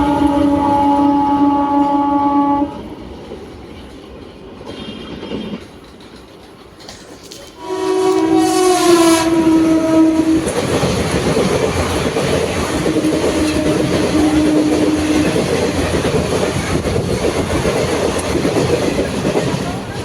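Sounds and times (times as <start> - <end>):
train horn blaring: 0.0 - 3.0, 7.6 - 10.9, 12.6 - 16.4
train rumble and clatter: 0.0 - 20.0.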